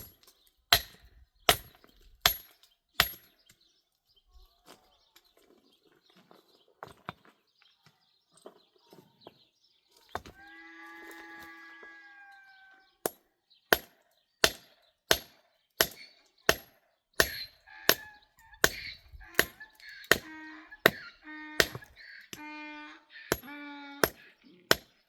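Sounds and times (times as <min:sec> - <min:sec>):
chopping strikes: 0:13.8 - 0:20.3.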